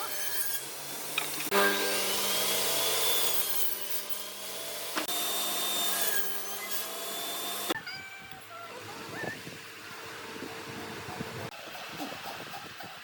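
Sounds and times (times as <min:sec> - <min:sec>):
power tool rasping wood: 0:00.0 - 0:07.8.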